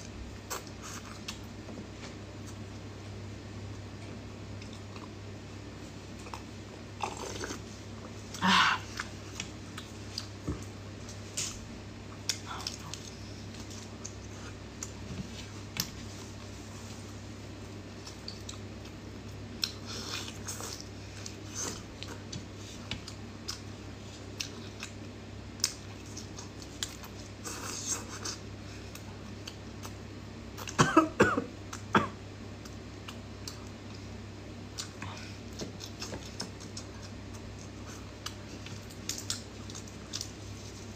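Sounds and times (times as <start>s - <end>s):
low steady hum: 0.0s - 40.9s
wet chewing: 34.8s - 40.8s
lip smacks and mouth clicks: 35.6s - 40.4s.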